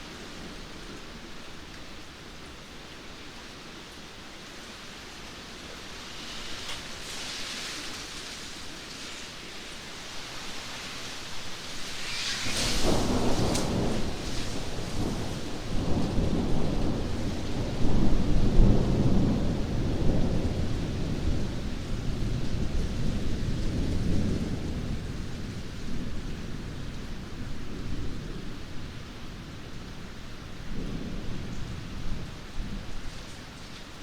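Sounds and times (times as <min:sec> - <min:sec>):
steady rain: 0:00.0 - 0:34.0
thunderclap and rumble: 0:11.8 - 0:30.0.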